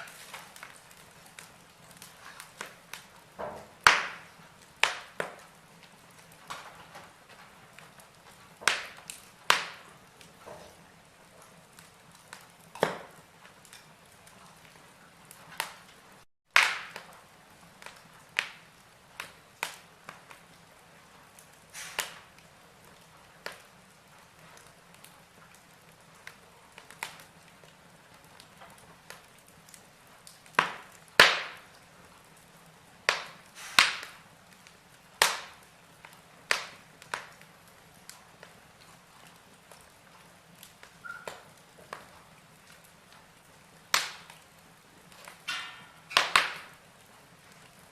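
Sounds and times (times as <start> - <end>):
wood fire crackling and popping: 0.0 - 47.9
faint hiss: 18.4 - 22.6, 32.9 - 39.1.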